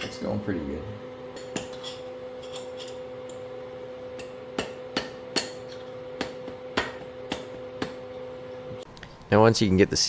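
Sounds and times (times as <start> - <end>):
steady low hum: 0.0 - 10.0
hammer tapping metal: 1.4 - 3.5, 4.1 - 8.6.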